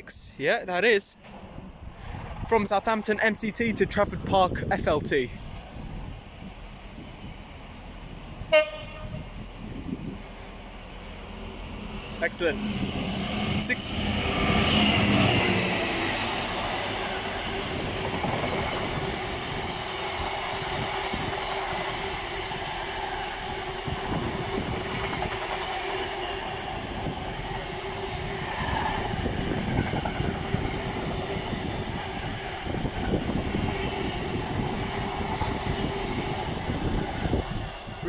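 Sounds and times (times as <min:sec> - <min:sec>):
train wheels rumbling: 0:00.0 - 0:38.0.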